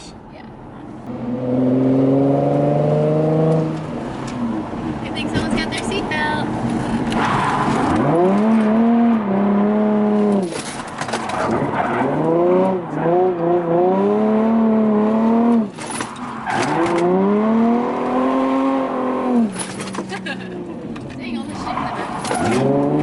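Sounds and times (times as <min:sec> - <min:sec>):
car engine revving hard: 0:01.1 - 0:04.6, 0:07.0 - 0:10.5, 0:11.3 - 0:15.7, 0:16.4 - 0:19.6, 0:21.6 - 0:23.0.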